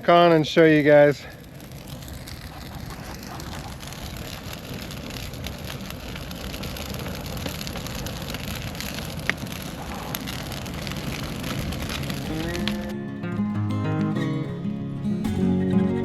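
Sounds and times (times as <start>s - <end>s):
bonfire crackling: 0.0s - 16.0s
fire sharp pop: 1.3s - 13.0s.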